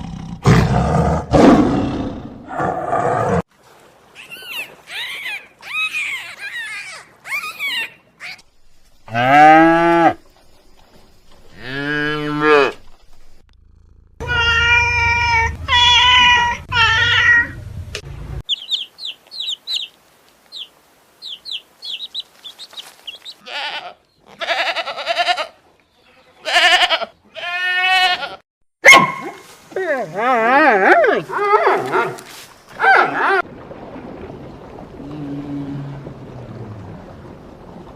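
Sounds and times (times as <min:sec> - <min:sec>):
animal calls: 0:04.2 - 0:08.5.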